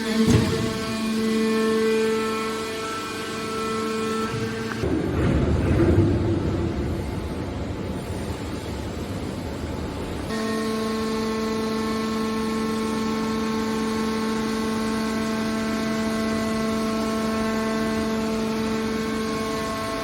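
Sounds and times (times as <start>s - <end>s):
steady pitched machine hum: 0.0s - 20.0s.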